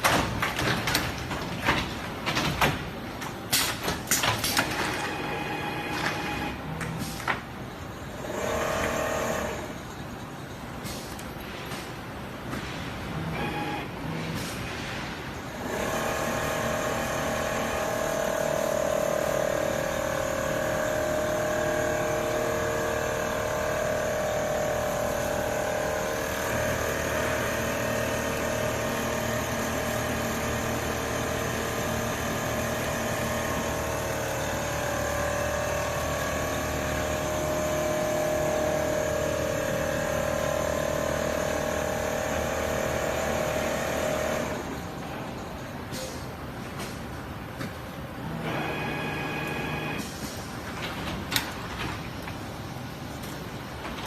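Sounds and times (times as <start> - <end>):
quilting machine humming: 15.6 - 45.4.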